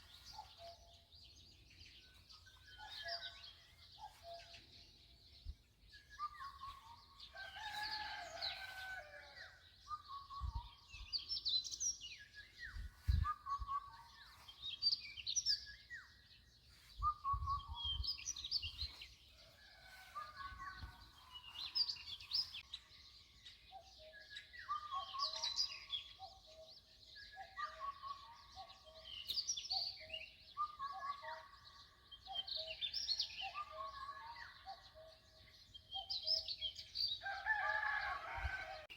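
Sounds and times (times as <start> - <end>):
birds chirping and singing: 0.0 - 38.9.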